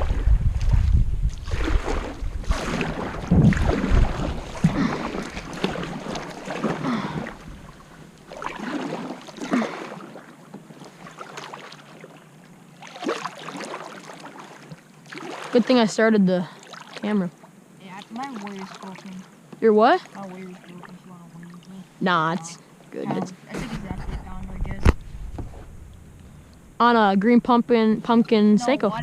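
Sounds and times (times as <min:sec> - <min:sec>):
wind rumbling on microphone: 0:00.0 - 0:08.1, 0:23.5 - 0:29.0
paddle blades swishing through water: 0:00.0 - 0:15.8, 0:16.5 - 0:17.2, 0:17.8 - 0:26.0.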